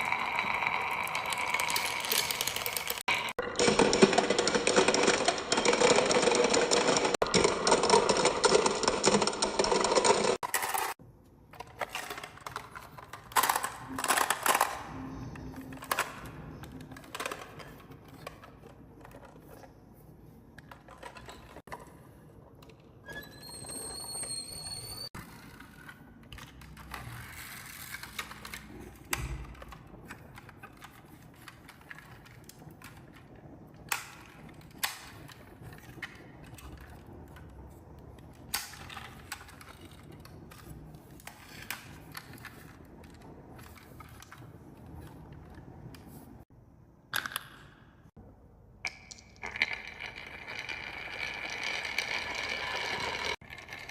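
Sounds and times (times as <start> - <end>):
marbles rolling on wooden track: 0.0 - 11.0, 11.8 - 19.6, 49.0 - 53.9.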